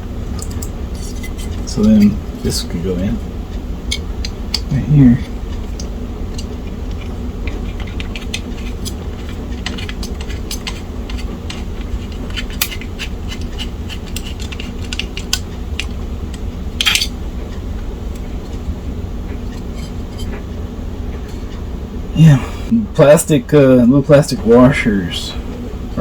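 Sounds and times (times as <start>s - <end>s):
steady low hum: 0.0s - 26.0s
laptop parts clicking and tapping: 5.7s - 16.0s.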